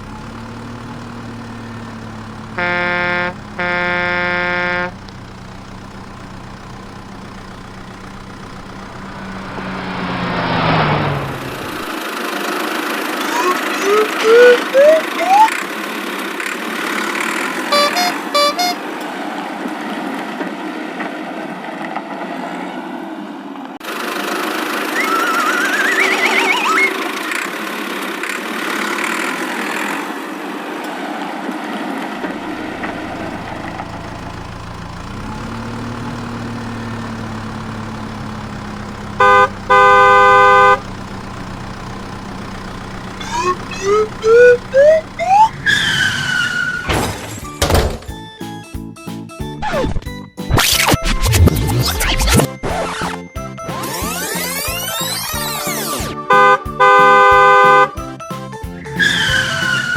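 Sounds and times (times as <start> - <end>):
horn honking: 0.0 - 12.0, 13.1 - 15.7, 17.4 - 19.2, 24.8 - 27.4, 32.4 - 47.9, 50.6 - 58.0, 59.0 - 59.9
low engine hum: 0.0 - 15.6, 32.3 - 46.9
cartoon motor with whistle glides: 0.3 - 5.0, 8.4 - 15.7, 17.5 - 18.8, 24.3 - 27.5, 35.1 - 41.0, 42.4 - 46.9, 49.6 - 58.0, 58.9 - 59.9.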